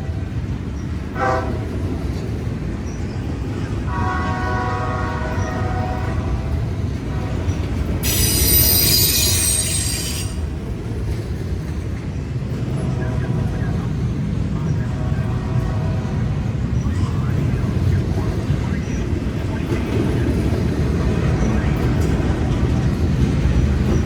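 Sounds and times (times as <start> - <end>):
train rumbling: 0.0 - 24.0
train air horn: 1.2 - 1.7, 3.9 - 10.4
wheels squealing on rails: 5.1 - 11.8.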